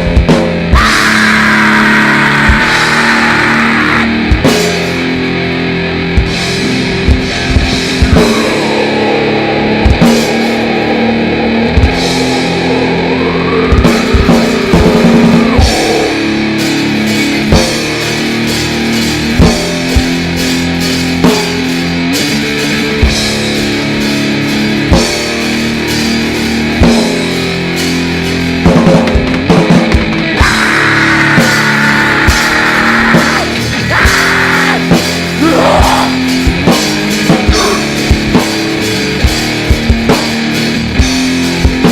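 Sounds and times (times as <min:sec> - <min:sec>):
distorted electric guitar chords: 0:00.0 - 0:41.9
sliding high wailing tones: 0:00.8 - 0:04.1, 0:07.2 - 0:17.3, 0:30.4 - 0:36.2.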